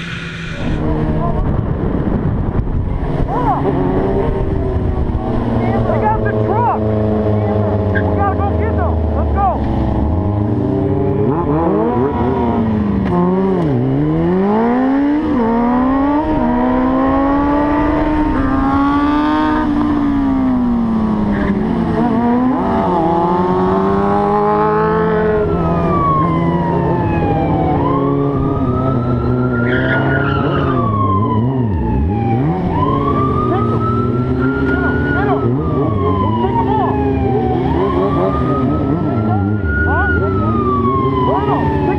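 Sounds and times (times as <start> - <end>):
motorcycle engine revving: 0.0 - 41.9
siren wailing: 14.0 - 41.9.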